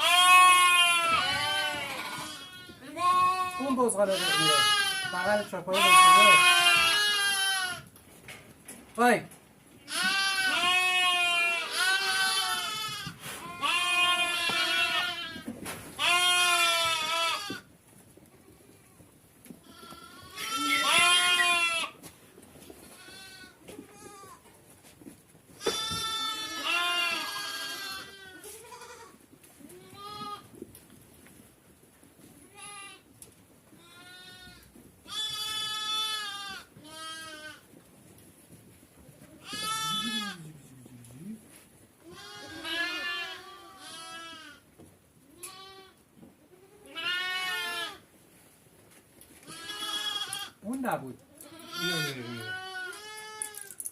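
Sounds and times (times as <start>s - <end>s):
goats and sheep bleating: 0.0s - 8.0s, 9.8s - 17.7s, 19.6s - 22.1s, 22.8s - 24.5s, 25.6s - 30.5s, 32.4s - 33.1s, 33.7s - 37.7s, 39.3s - 40.7s, 42.0s - 48.1s, 49.4s - 50.7s, 51.3s - 53.8s.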